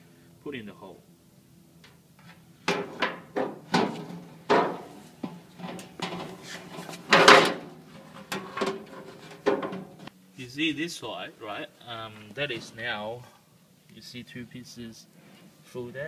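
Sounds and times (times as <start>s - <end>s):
metal drawer runner knocking: 2.7s - 10.1s.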